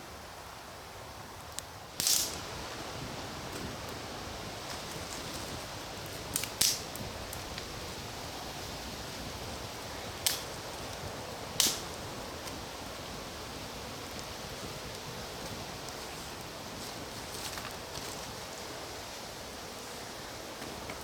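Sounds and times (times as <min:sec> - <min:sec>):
low hiss: 0:00.0 - 0:21.0
campfire crackling: 0:00.8 - 0:21.0
fire pops: 0:01.6 - 0:02.6, 0:04.6 - 0:07.7, 0:10.2 - 0:12.6.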